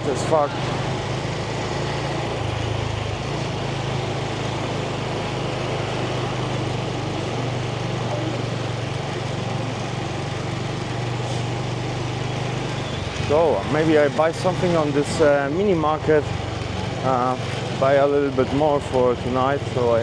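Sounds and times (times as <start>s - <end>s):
motorbike engine running: 0.0s - 20.0s.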